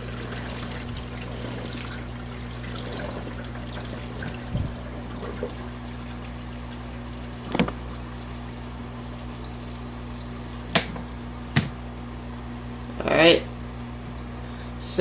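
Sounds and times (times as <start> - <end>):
moving water: 0.0 - 11.6
washing machine motor hum: 0.0 - 15.0.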